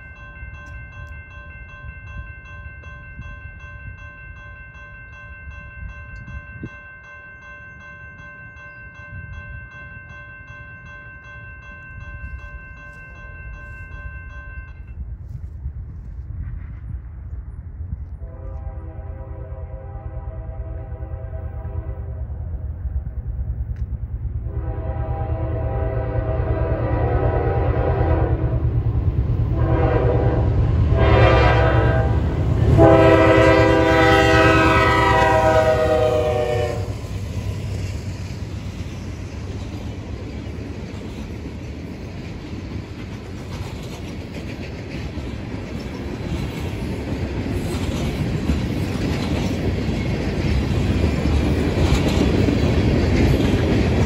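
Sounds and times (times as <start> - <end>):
train horn blasts: 18.2 - 22.3, 24.4 - 28.8, 29.5 - 37.1.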